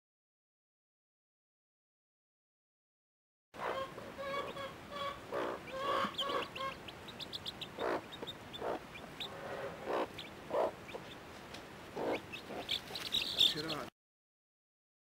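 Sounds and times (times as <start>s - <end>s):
chicks peeping: 3.6s - 13.9s
hen clucking: 3.6s - 13.9s.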